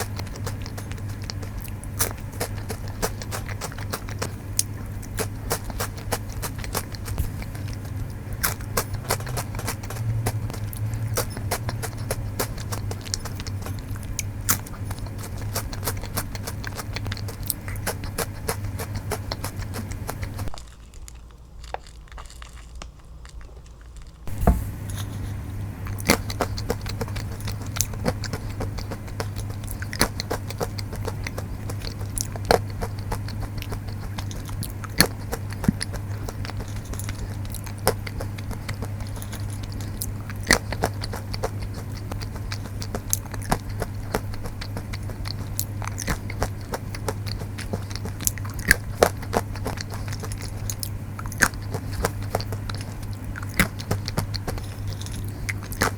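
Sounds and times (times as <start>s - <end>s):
low hum: 0.0s - 20.7s
crunchy chewing of peanuts: 0.0s - 55.9s.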